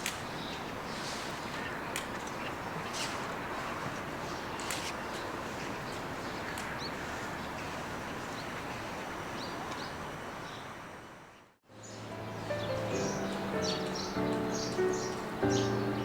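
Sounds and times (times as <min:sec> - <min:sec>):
outdoor ambient noise: 0:00.0 - 0:16.0
music: 0:11.7 - 0:16.0
high bird chirps: 0:11.8 - 0:16.0.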